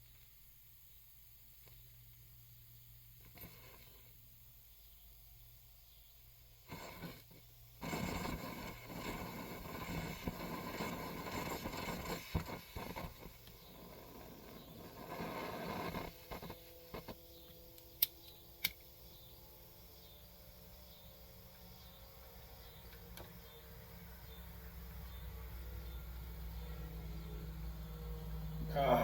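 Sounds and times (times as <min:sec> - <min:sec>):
gas stove burner rushing: 0:06.6 - 0:18.9.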